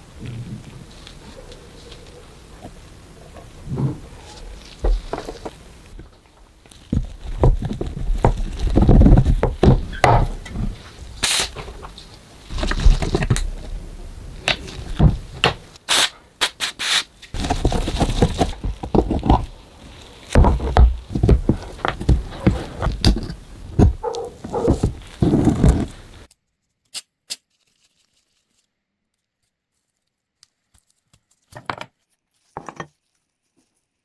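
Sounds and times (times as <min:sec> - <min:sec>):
hand work on metal parts: 0:00.0 - 0:26.3
heavy thuds: 0:02.6 - 0:15.8, 0:20.3 - 0:26.3.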